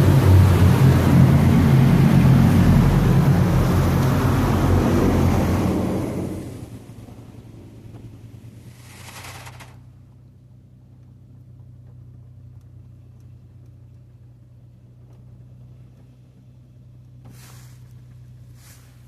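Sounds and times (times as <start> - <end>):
car wash low hum: 0.0 - 19.0
hissing water spray: 8.5 - 9.8, 17.3 - 19.0.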